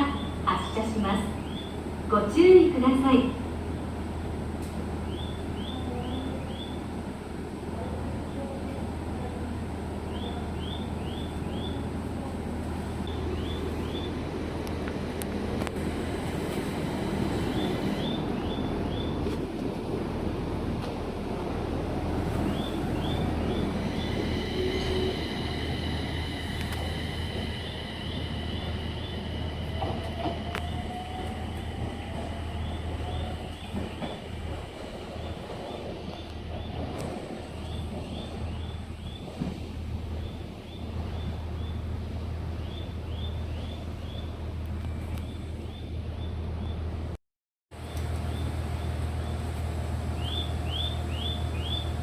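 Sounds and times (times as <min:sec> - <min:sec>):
electric train humming: 0:00.0 - 0:47.2, 0:47.8 - 0:52.0.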